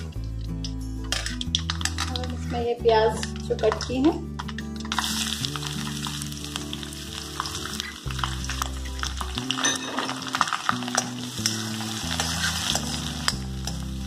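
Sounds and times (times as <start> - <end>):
background music: 0.0 - 14.0
onion sizzling in hot oil: 4.4 - 14.0
steel spoon scraping and clinking: 10.9 - 13.8.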